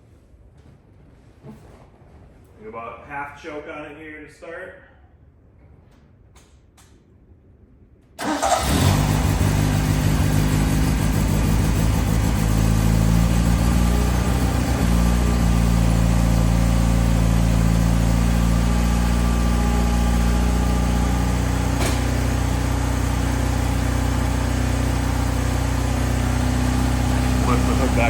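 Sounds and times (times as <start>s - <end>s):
car engine starting and idling: 8.2s - 28.0s.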